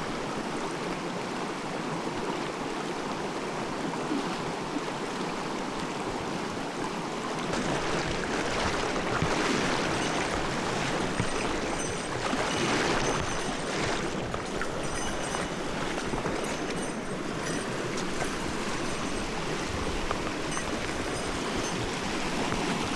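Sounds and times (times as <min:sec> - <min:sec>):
mountain stream flowing: 0:00.0 - 0:22.9.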